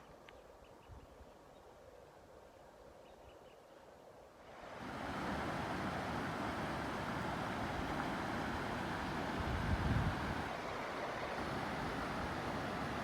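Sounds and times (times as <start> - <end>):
fast-flowing stream water: 4.5 - 13.0.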